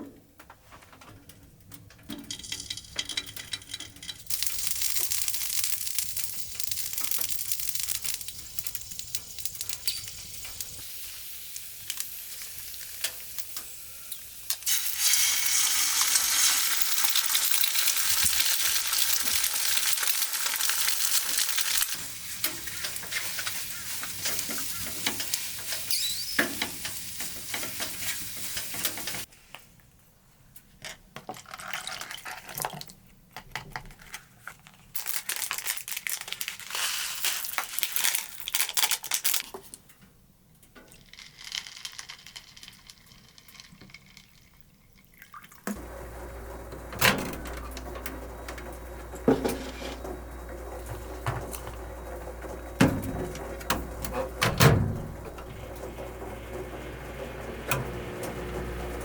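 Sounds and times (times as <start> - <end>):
food sizzling in a pan: 4.3 - 29.3.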